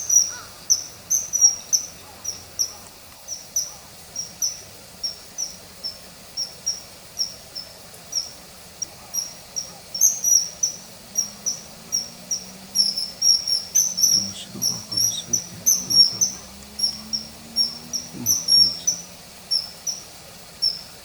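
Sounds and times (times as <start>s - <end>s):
kingfisher whistling calls: 9.2s - 20.9s.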